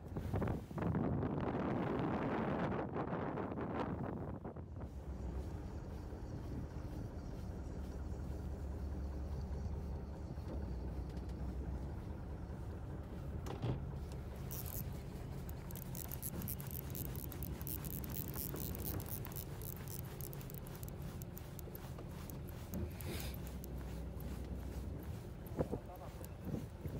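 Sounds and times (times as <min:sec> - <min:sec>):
boat engine humming: 0:04.5 - 0:26.9
rapid clicking and rattling: 0:14.0 - 0:26.9.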